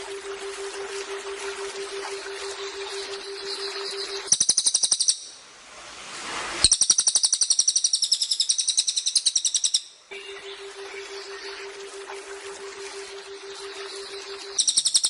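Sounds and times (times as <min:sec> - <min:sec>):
songbird trilling: 0:02.6 - 0:05.3, 0:06.7 - 0:11.7, 0:13.3 - 0:15.0.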